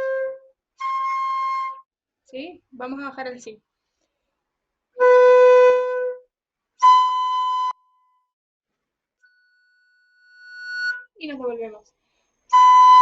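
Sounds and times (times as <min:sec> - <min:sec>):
flute playing held notes: 0:06.8 - 0:07.8, 0:12.5 - 0:13.0.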